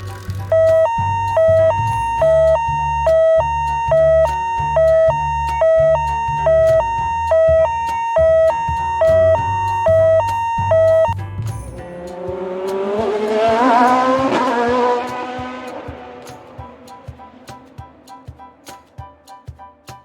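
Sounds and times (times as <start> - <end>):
low steady rumble: 0.0 - 14.4
two-tone emergency siren: 0.5 - 11.2.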